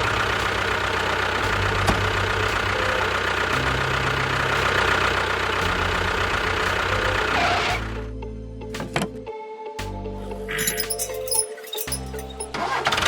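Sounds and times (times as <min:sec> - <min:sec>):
engine idling: 0:00.0 - 0:08.1.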